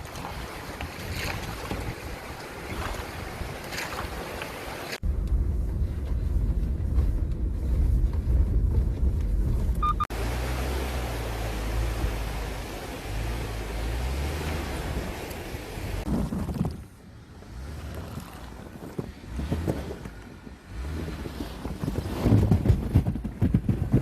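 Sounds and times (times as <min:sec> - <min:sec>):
rushing stream water: 0:00.0 - 0:05.0, 0:10.1 - 0:16.1
wind buffeting microphone: 0:00.0 - 0:10.0, 0:11.4 - 0:24.0
heavy low rumble: 0:05.0 - 0:20.1.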